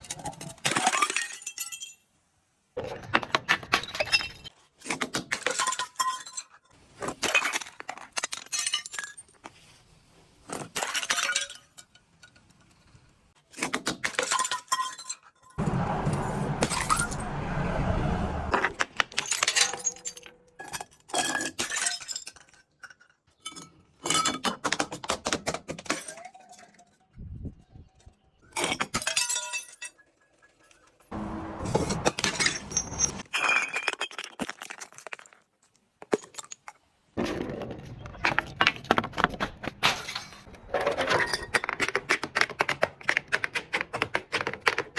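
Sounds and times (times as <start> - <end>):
glass bottles breaking and crushing: 0.0 - 2.1, 3.8 - 4.5, 5.1 - 9.4, 10.5 - 12.2, 13.9 - 15.6, 19.1 - 24.9, 25.7 - 27.1, 28.5 - 30.6, 32.0 - 36.7.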